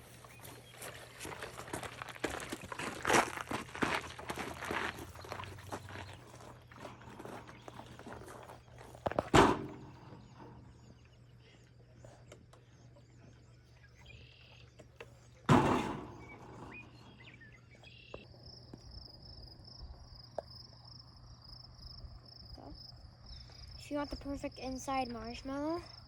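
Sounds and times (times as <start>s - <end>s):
birds chirping: 0.0s - 18.8s, 21.3s - 26.0s
heavy thumps: 9.0s - 10.5s, 15.5s - 17.3s.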